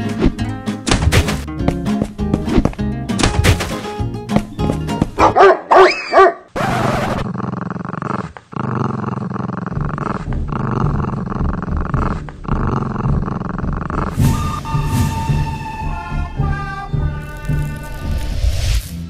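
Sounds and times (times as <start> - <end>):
music: 0.0 - 5.4, 14.1 - 19.0
dog growling: 6.8 - 14.4.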